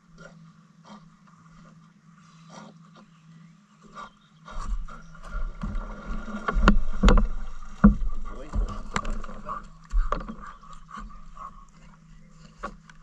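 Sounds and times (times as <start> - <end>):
water splashing: 4.5 - 13.0
canoe knocking: 4.6 - 13.0.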